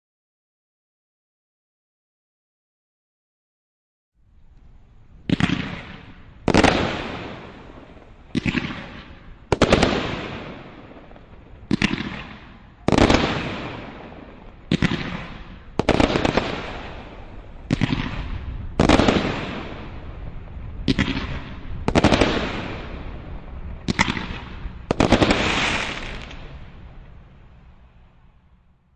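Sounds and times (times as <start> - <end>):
firework cake bangs: 8.3 - 17.0, 17.6 - 19.9, 20.8 - 23.0, 23.8 - 26.5.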